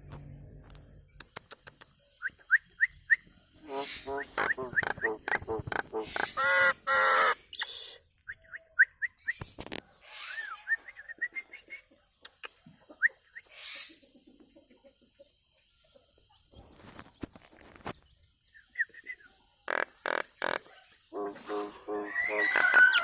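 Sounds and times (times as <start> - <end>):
whistled chirps and raspy notes: 1.2 - 9.4, 18.6 - 23.0
myna calling: 3.6 - 7.4, 19.7 - 23.0.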